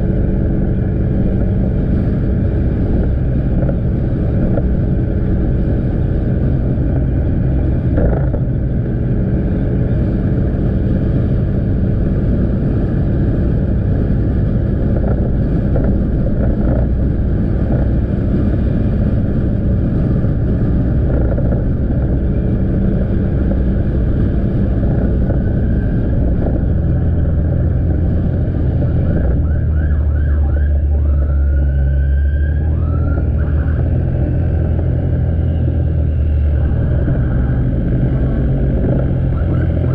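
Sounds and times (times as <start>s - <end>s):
motorcycle engine running: 0.0s - 31.8s, 32.8s - 39.9s
road and wind noise: 0.0s - 39.9s
high rising and falling squeals: 28.7s - 34.6s.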